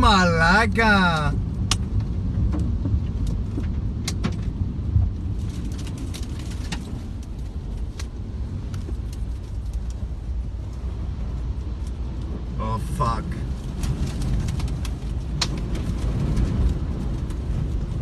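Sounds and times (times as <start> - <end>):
storm wind rumbling: 0.0 - 18.0.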